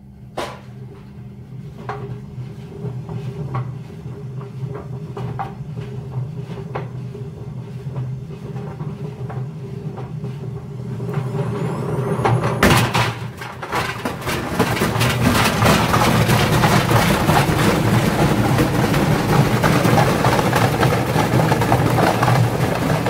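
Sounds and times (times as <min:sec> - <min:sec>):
steady low hum: 0:00.0 - 0:23.0
washing machine motor whine: 0:00.0 - 0:23.0
loud bang: 0:12.2 - 0:13.4
bricks banging and rattling in drum: 0:12.6 - 0:23.0.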